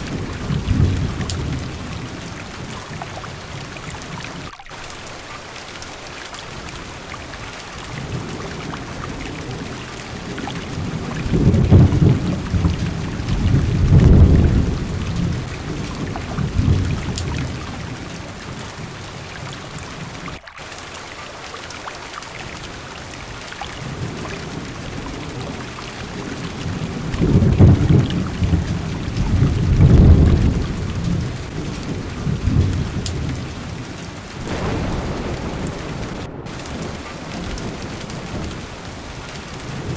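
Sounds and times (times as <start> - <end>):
thunder rolling: 0.0 - 3.6, 7.9 - 18.1, 25.0 - 39.9
heavy rain: 0.0 - 39.9.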